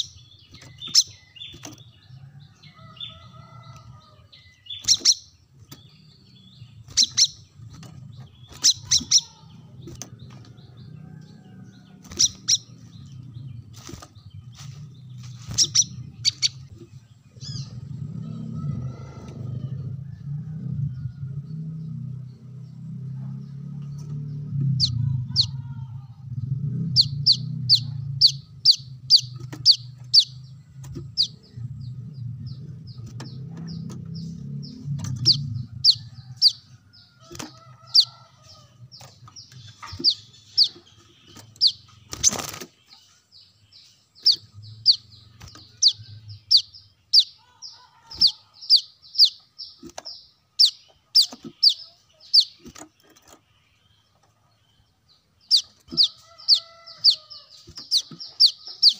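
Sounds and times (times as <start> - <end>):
low hum: 5.6 - 37.5.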